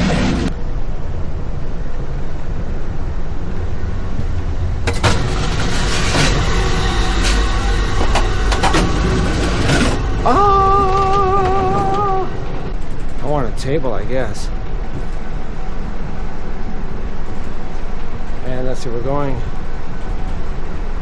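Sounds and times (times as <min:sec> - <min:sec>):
train car low rumble: 0:00.0 - 0:21.0
clanks and rattles: 0:04.1 - 0:16.2.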